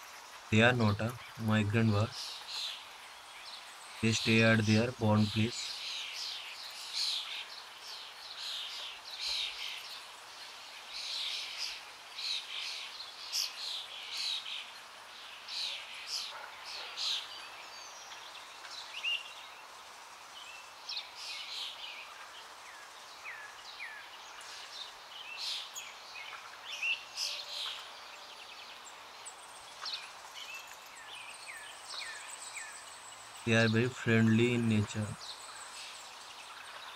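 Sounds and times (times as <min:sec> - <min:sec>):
birds chirping: 0:00.0 - 0:10.1, 0:20.4 - 0:36.9
steady outdoor hiss: 0:00.0 - 0:36.9.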